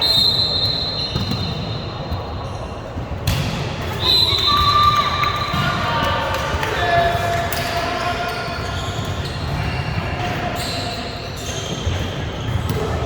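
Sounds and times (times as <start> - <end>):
shoe squeaks on gym floor: 0.0 - 2.8, 10.4 - 13.0
echoing chatter: 3.7 - 13.0.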